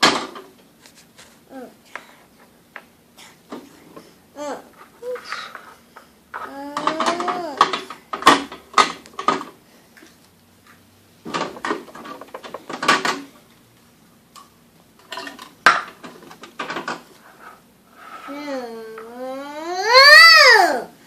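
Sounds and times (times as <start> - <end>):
hard objects clattering: 4.7 - 9.6, 11.2 - 13.4, 15.0 - 17.6.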